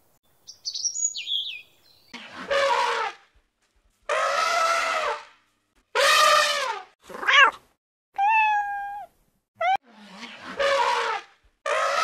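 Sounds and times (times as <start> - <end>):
elephant trumpeting: 4.1 - 5.3, 10.2 - 12.0
kitten meowing: 8.2 - 9.8.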